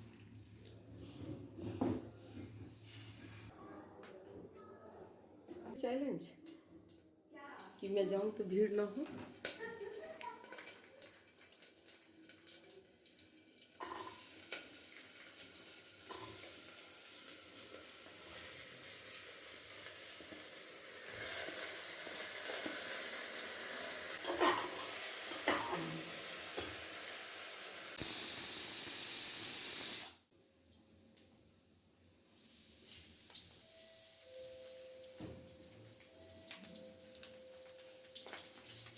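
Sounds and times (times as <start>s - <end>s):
water running from tap: 7.6s - 30.1s, 32.7s - 38.9s.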